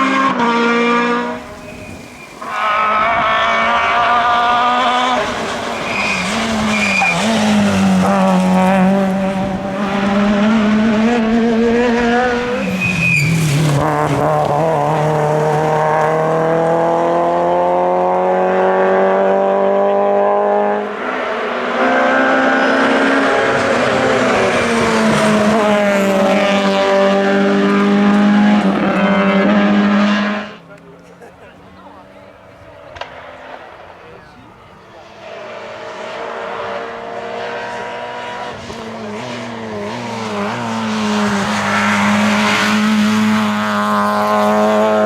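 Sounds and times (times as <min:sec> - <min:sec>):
rally car engine revving: 0:00.0 - 0:45.0
tyre squeals: 0:01.0 - 0:15.4.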